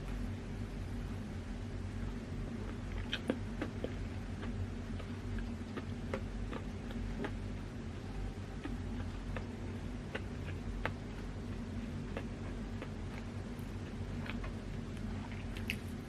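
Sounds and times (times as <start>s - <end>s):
steady low hum: 0.0s - 16.0s
wet chewing mouth clicks: 2.6s - 7.6s, 8.2s - 16.0s.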